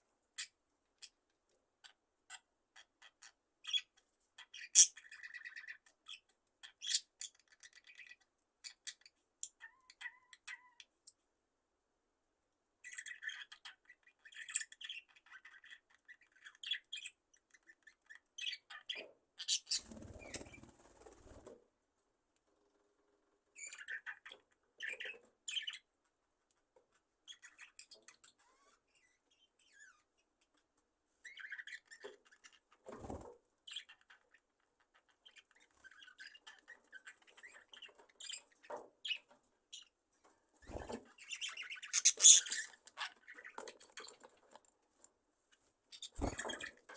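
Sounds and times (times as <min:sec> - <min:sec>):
budgerigars chirping: 0:01.8 - 0:10.8, 0:40.7 - 0:44.3, 0:45.9 - 0:46.8
fluttering wings: 0:46.2 - 0:46.7.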